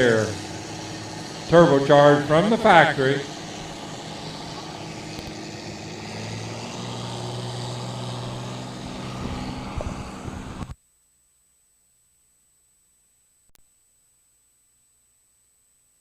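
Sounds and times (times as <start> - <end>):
tractor engine running: 0.0 - 10.8.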